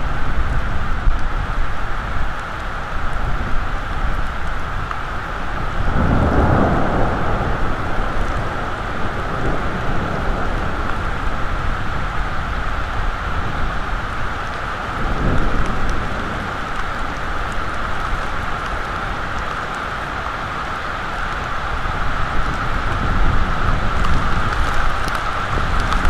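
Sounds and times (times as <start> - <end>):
heavy rain falling: 0.0 - 26.0
low rumble of thunder: 5.6 - 19.7.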